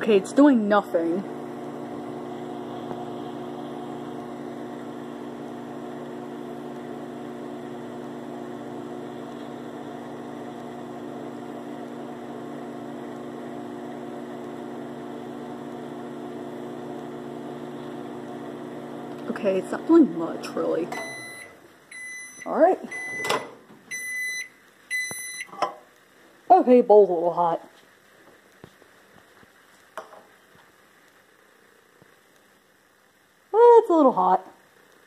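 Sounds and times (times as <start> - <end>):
microwave oven humming: 0.0 - 25.8.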